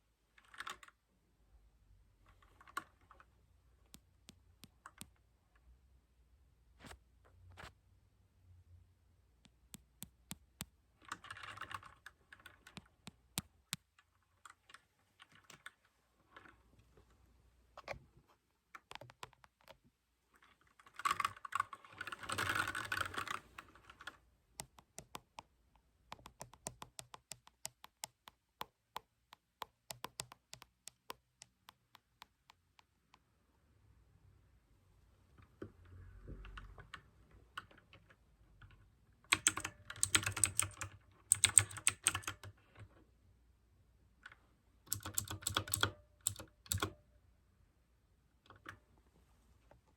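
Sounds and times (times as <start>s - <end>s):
mechanical keyboard clicks: 18.8s - 19.8s, 24.0s - 25.5s, 26.1s - 32.9s, 39.3s - 42.6s, 44.9s - 47.0s.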